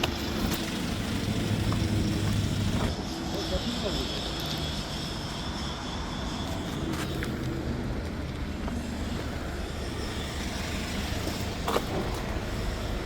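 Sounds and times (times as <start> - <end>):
low mechanical rumble: 0.0 - 3.2.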